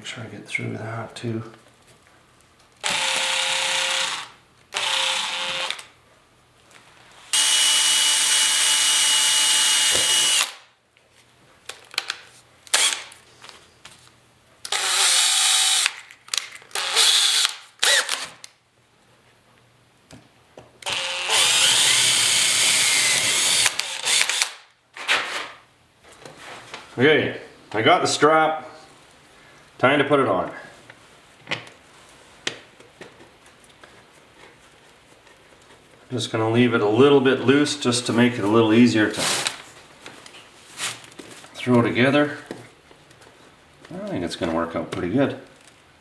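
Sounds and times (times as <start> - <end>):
electric drill drilling holes: 2.8 - 5.9, 7.3 - 10.6, 12.7 - 13.1, 14.7 - 16.0, 16.7 - 18.4, 20.8 - 24.6.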